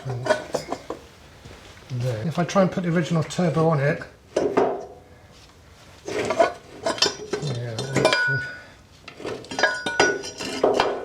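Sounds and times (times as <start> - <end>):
metal knocks and clinks: 0.0 - 1.0, 6.3 - 8.6, 9.2 - 11.0.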